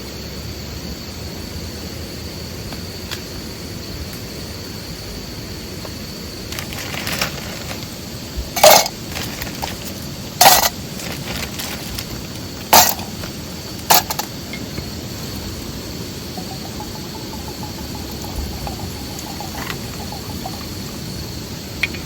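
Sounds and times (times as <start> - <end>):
steady background hiss: 0.0 - 22.0
faint high steady tone: 15.4 - 22.0.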